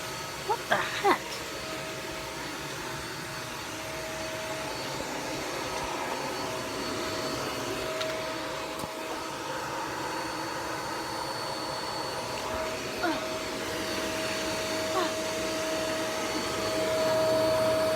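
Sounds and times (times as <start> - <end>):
vacuum cleaner running: 0.0 - 17.9.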